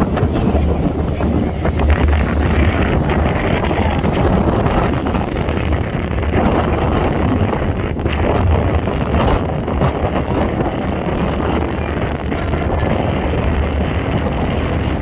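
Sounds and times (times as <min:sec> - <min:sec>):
ferry engine rumble: 0:00.0 - 0:15.0
wind buffeting microphone: 0:00.0 - 0:15.0.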